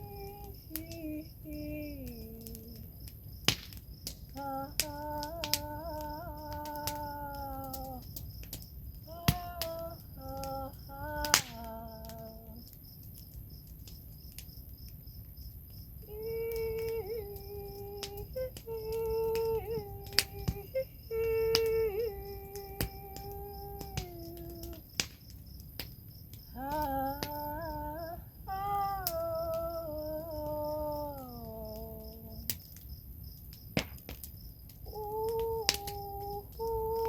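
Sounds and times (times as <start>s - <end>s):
woman singing wordless notes: 0.0s - 3.0s, 4.3s - 8.2s, 9.1s - 12.7s, 16.0s - 24.9s, 26.5s - 32.6s, 34.9s - 37.0s
crickets chirring: 0.0s - 37.0s.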